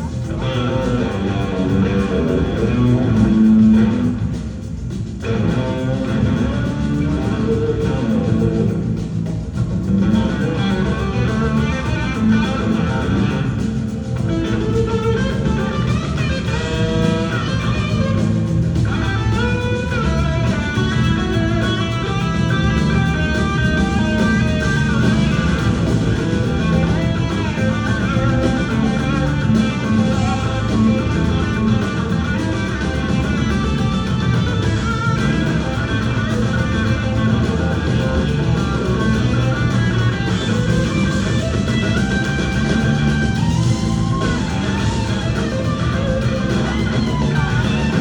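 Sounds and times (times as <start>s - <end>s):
bass guitar: 0.0s - 48.0s
electric guitar lead: 0.0s - 48.0s
rock band playing: 0.0s - 48.0s.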